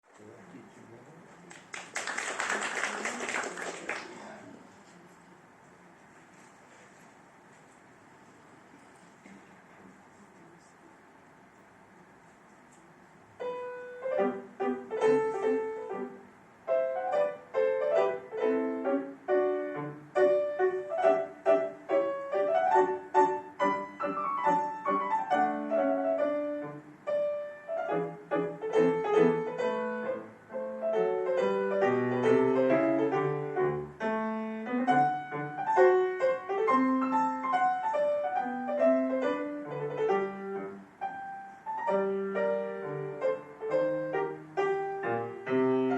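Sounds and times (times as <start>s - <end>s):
faint room hiss: 0.0s - 45.9s
solo piano playing: 13.4s - 45.9s.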